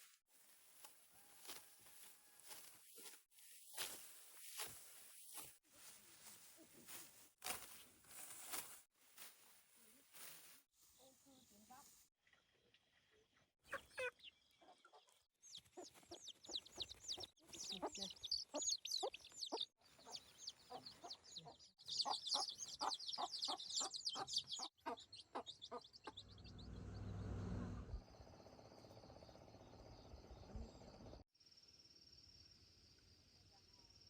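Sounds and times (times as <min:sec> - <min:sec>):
chickens clucking: 0:13.7 - 0:26.2.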